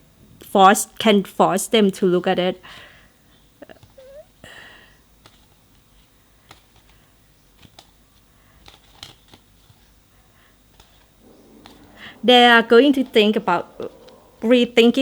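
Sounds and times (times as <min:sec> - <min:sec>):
cards being handled: 0:05.2 - 0:10.0.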